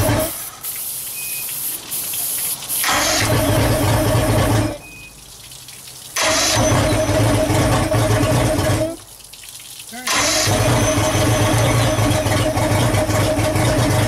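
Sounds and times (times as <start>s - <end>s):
outboard engine electric starter cranking: 0.0s - 0.4s, 2.8s - 4.8s, 6.2s - 9.0s, 10.1s - 14.0s.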